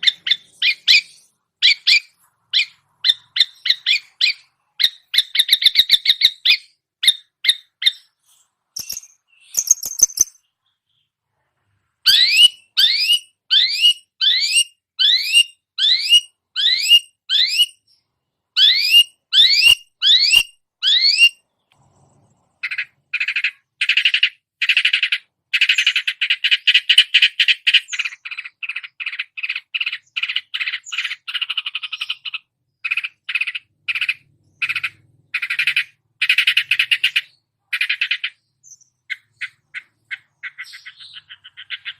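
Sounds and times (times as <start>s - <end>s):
bird singing mimicked calls: 0.0s - 8.2s, 8.8s - 11.1s, 12.0s - 21.4s, 22.6s - 41.9s
harsh buzzy bird chatter: 0.0s - 8.2s, 8.8s - 10.6s, 18.7s - 41.9s
rising whistled bird notes: 12.0s - 18.0s.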